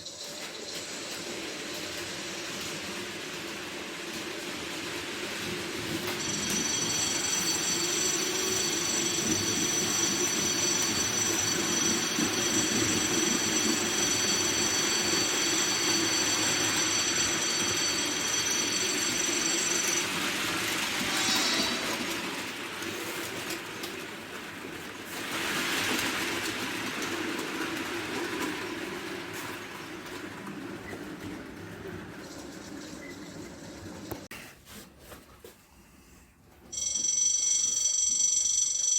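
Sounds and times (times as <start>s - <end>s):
model train wheels rumbling on rail: 0.0s - 34.3s
high-pitched whine: 5.4s - 22.6s.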